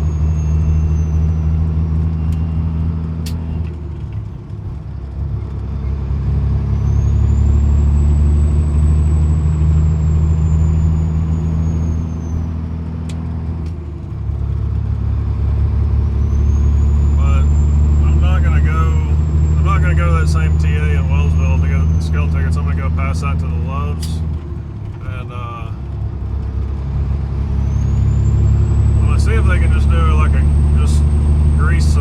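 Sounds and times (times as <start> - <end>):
diesel truck engine under load: 0.0 - 32.0.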